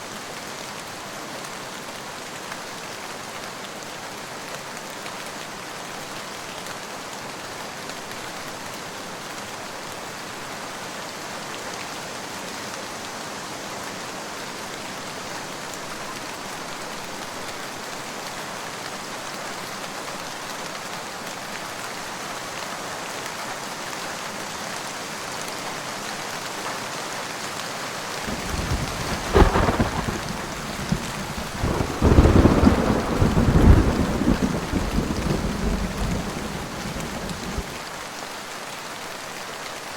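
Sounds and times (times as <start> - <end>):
thunderclap and rolling rumble: 28.3 - 37.8
rain hissing: 28.3 - 37.9.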